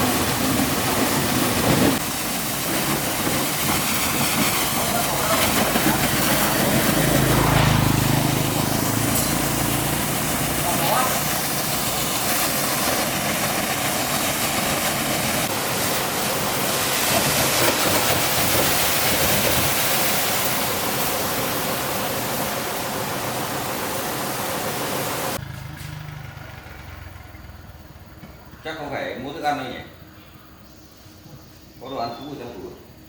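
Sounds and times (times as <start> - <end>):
loud even hiss: 0.0 - 26.3
motor running: 5.3 - 12.5.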